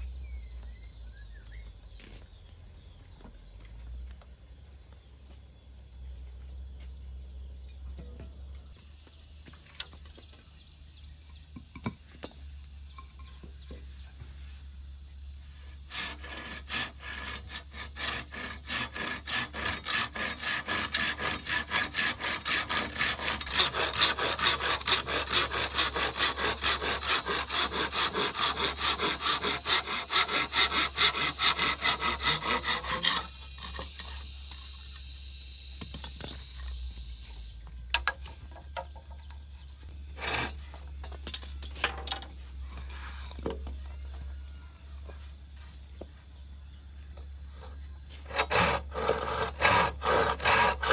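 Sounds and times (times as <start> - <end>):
hand saw cutting wood: 15.8 - 34.3, 40.2 - 40.7, 48.2 - 50.9.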